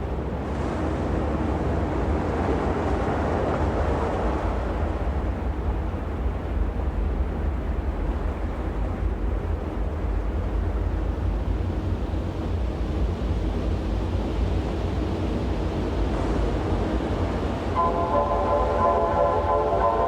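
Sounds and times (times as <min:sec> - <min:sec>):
rainstorm: 0:15.4 - 0:20.0.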